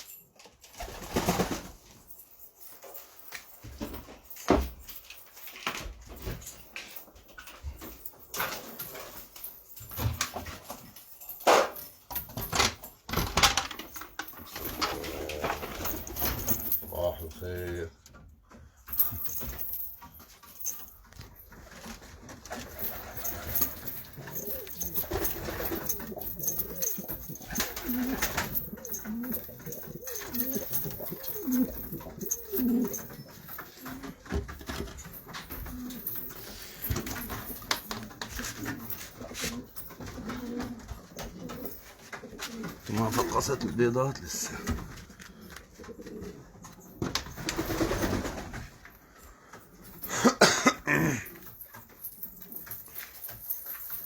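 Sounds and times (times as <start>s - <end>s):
pigeons cooing: 14.5s - 16.5s, 22.6s - 37.5s.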